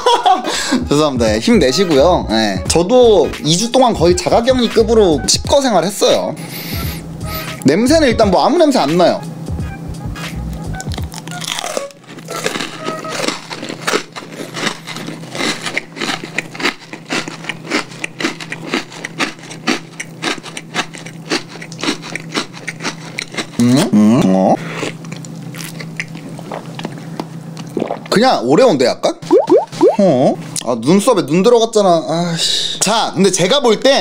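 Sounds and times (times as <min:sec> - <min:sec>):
cookie crunching: 0:10.8 - 0:23.9
person humming: 0:23.6 - 0:24.6
mouth clicks: 0:29.3 - 0:30.0.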